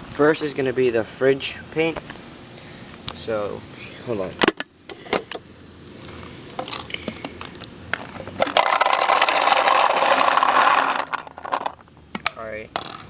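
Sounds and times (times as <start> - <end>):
paintballs rattling into hopper: 8.4 - 11.8.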